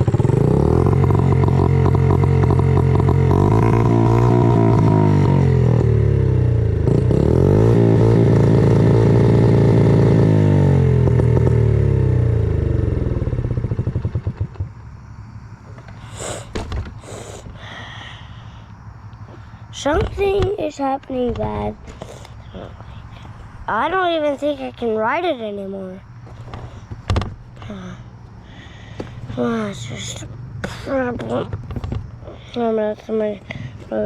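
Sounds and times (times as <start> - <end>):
dirt bike engine running: 0.0 - 34.0
engine sputtering and dying: 0.0 - 34.0
person talking: 19.7 - 26.1, 27.6 - 28.0, 29.3 - 31.6, 32.3 - 34.0.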